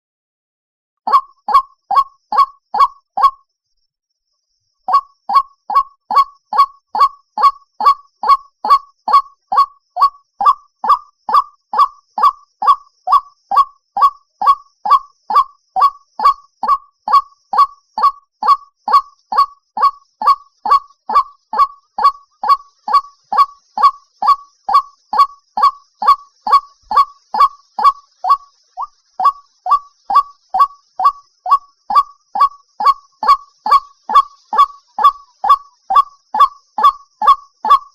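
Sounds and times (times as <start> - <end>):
waterhen calling: 1.1 - 3.4, 4.9 - 37.9.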